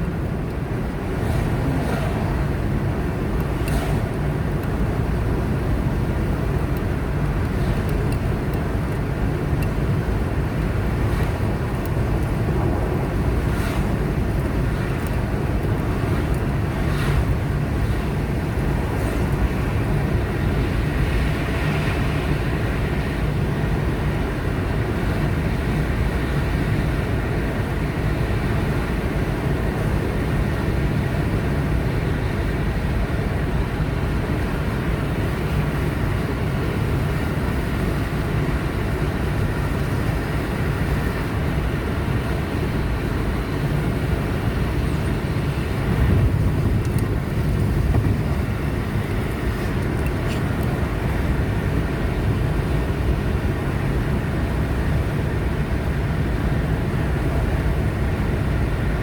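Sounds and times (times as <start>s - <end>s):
car engine and tyre noise: 0.0s - 59.0s.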